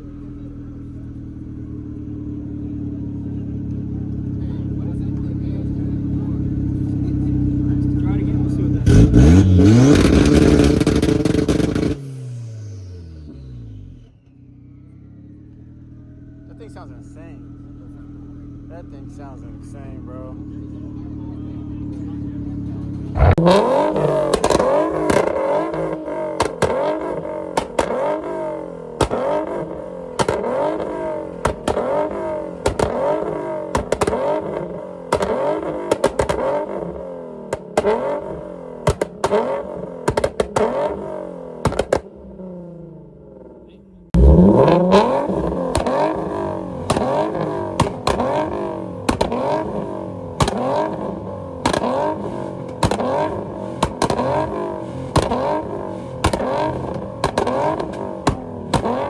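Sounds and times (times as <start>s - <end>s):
car engine revving hard: 7.1s - 14.1s, 20.1s - 59.0s
exhaust pops and bangs: 22.7s - 42.1s, 44.2s - 59.0s.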